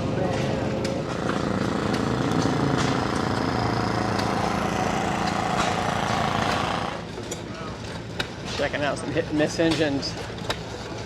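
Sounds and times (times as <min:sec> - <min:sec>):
gasoline engine running: 0:00.6 - 0:07.2.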